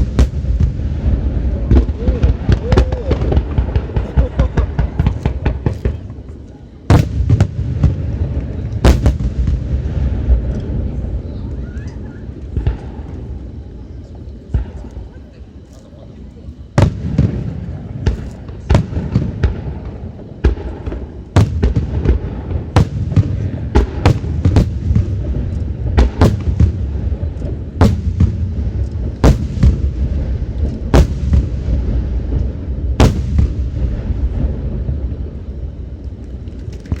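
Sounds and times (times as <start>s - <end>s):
low rumble: 0.0s - 6.5s, 7.1s - 15.3s, 16.6s - 37.0s
fireworks booming: 0.0s - 15.6s, 16.5s - 37.0s.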